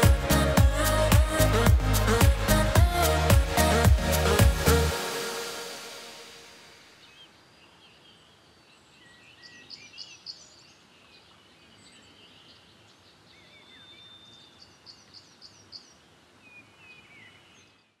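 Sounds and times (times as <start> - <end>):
songbirds singing: 6.9 - 18.0.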